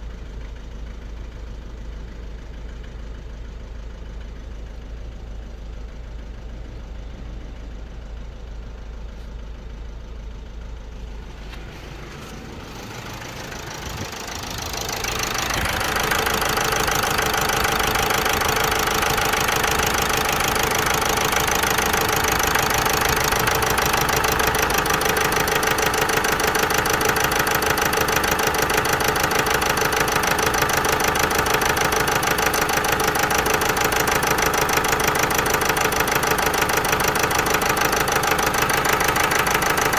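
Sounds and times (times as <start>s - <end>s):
diesel engine running: 9.7s - 39.9s.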